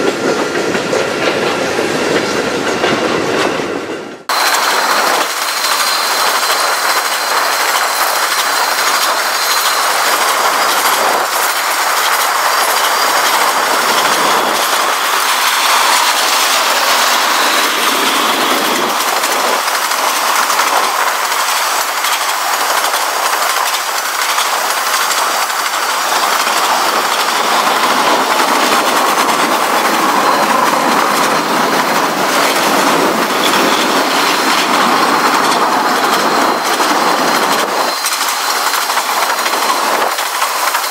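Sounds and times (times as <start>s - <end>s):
train wheels clattering over rail joints: 0.0s - 40.9s
faint high squeal: 36.2s - 39.8s.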